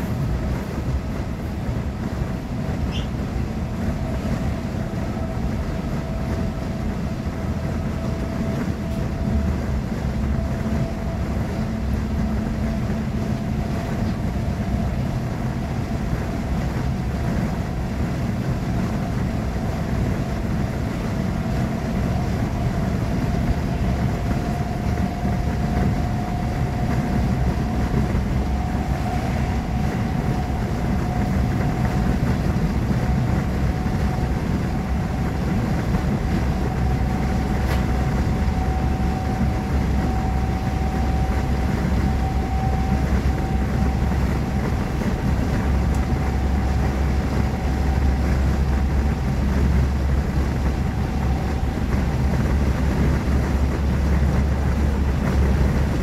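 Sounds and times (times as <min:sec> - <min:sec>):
train interior rumble: 0:00.0 - 0:56.0
faint whine rising in pitch: 0:19.0 - 0:56.0.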